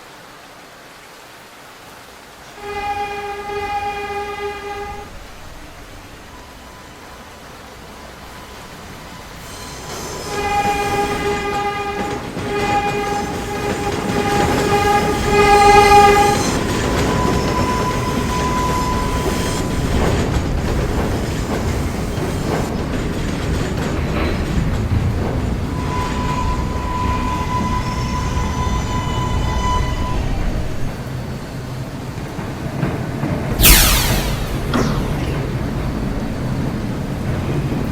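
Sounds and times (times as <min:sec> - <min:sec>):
train running with high whine: 0:02.1 - 0:37.9
subway train horn blasts: 0:02.5 - 0:07.5, 0:08.4 - 0:21.2, 0:25.7 - 0:31.0
wheels clicking over rail joints: 0:19.8 - 0:26.4.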